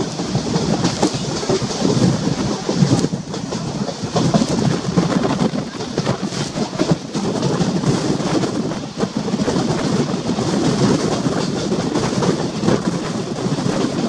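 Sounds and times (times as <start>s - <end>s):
wheel and rail running noise: 0.0s - 14.0s
wheels clicking over rails: 0.0s - 14.0s.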